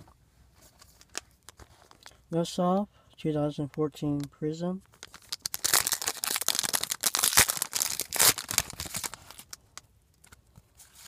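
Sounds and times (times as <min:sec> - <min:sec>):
foil wrapper crinkling and tearing: 0:04.9 - 0:09.6.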